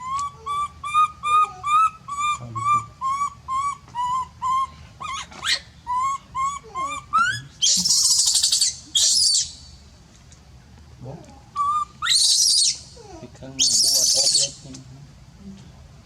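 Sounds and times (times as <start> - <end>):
monkey harsh screams: 0.0 - 9.6, 11.6 - 14.6
baby monkey high-pitched cries: 0.0 - 9.7, 11.4 - 14.6.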